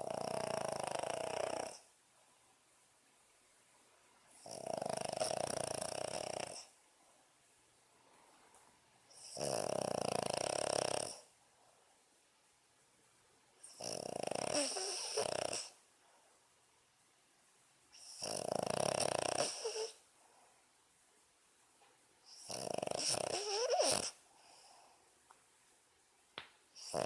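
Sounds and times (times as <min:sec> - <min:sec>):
dog snoring: 0:00.0 - 0:01.9, 0:04.3 - 0:06.8, 0:09.1 - 0:11.3, 0:13.6 - 0:15.8, 0:17.9 - 0:20.0, 0:22.3 - 0:24.6, 0:26.8 - 0:27.0.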